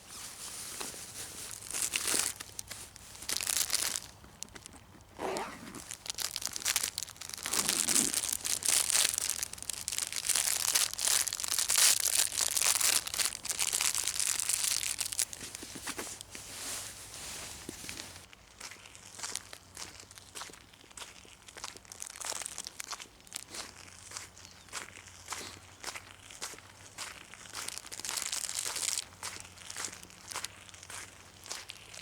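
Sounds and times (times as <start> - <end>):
footsteps crunching through snow: 0.0 - 18.3.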